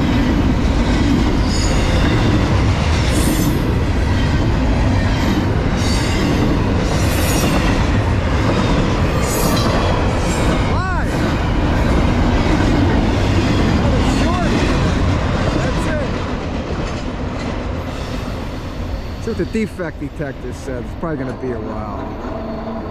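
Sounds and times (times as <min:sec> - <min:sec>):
steel wheels rumbling on rails: 0:00.0 - 0:22.9
train wheel hiss and squeal: 0:01.4 - 0:02.1, 0:05.8 - 0:07.7, 0:17.8 - 0:22.9.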